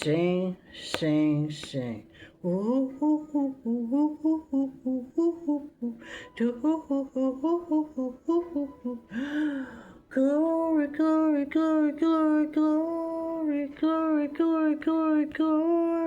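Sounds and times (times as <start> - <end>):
woman humming: 2.4 - 9.4
woman breathing in: 6.0 - 6.4, 9.1 - 10.1.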